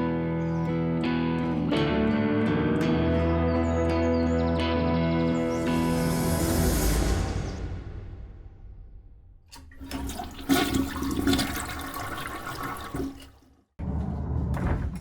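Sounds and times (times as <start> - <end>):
music: 0.0 - 9.6
low rumble: 5.4 - 9.6
toilet flushing: 9.5 - 13.5.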